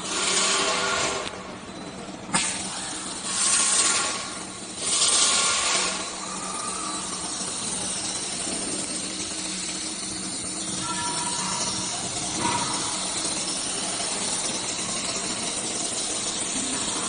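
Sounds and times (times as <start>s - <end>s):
machine hum: 0.0s - 17.0s
compressed air hissing: 2.3s - 17.0s.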